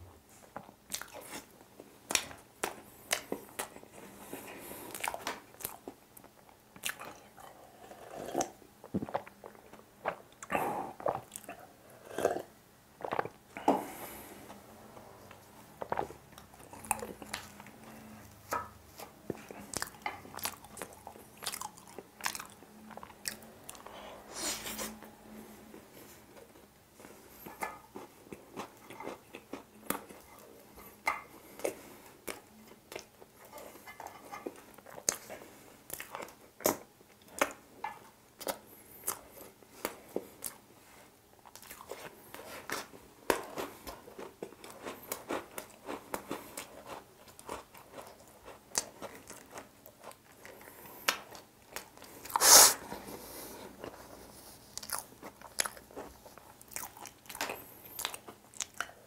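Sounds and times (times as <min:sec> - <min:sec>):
wet chewing and smacking: 0:00.6 - 0:04.1, 0:04.9 - 0:07.5, 0:15.8 - 0:23.9, 0:26.3 - 0:37.6, 0:38.4 - 0:40.6, 0:41.4 - 0:52.4, 0:53.8 - 0:59.0.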